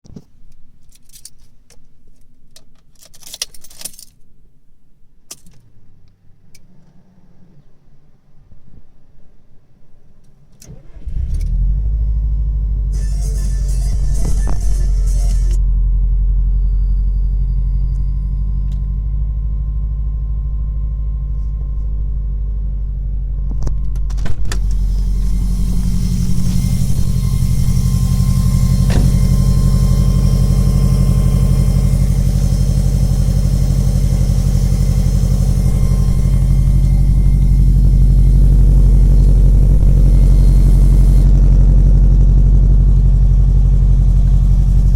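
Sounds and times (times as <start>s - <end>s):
car keys jangling: 2.7s - 4.2s
car engine idling: 10.7s - 44.9s
faint steady high tone: 12.0s - 44.9s
high-pitched buzzing: 12.9s - 15.8s, 24.5s - 43.2s
hiss: 24.6s - 30.1s.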